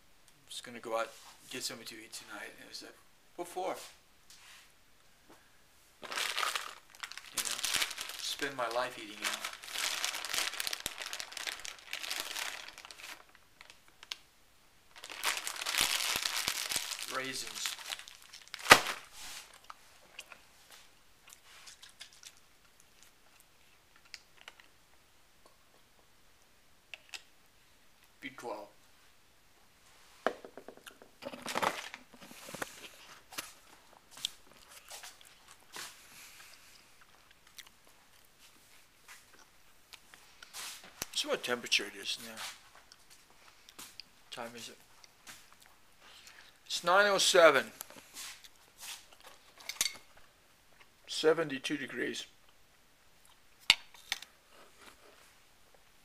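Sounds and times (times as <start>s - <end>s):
crinkly rustling: 6.0s - 14.2s, 14.9s - 22.4s
faint crunches and clicks: 21.2s - 24.7s.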